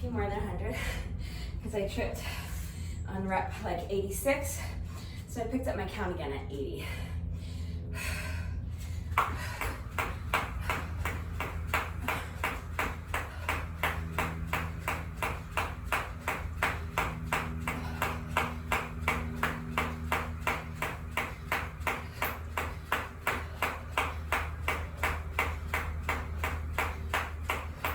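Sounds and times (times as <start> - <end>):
steady low hum: 0.0 - 27.9
jump rope slapping the floor: 8.8 - 27.9.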